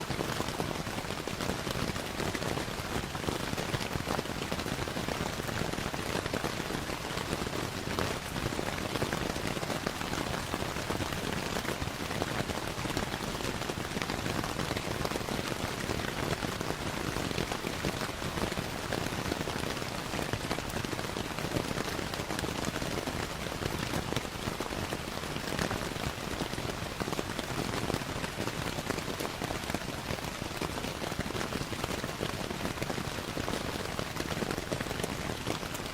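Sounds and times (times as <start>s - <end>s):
steady rain: 0.0s - 35.9s.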